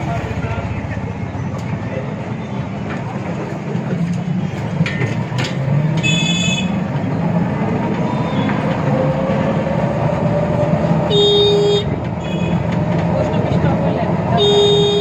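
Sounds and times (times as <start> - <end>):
vehicle engine and road noise: 0.0 - 15.0
shrill horn honking: 6.0 - 6.8, 11.0 - 12.7, 14.3 - 15.0.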